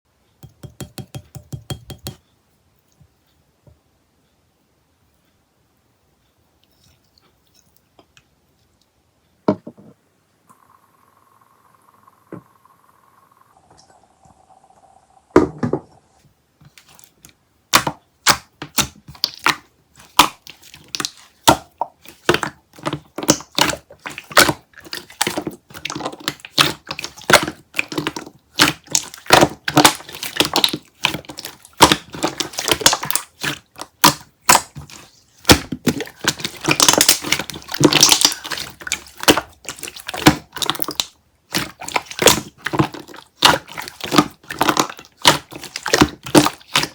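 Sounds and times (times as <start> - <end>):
crunching and chewing fruit: 18.8 - 46.9.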